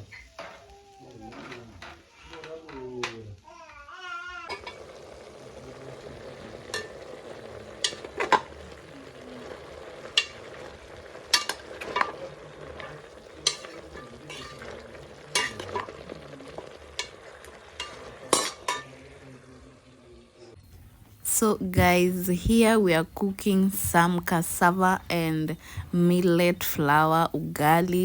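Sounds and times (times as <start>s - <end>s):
stick knocking against a pot: 7.8s - 8.6s, 10.1s - 10.7s, 11.3s - 18.9s
stick scraping a pot: 11.3s - 18.8s.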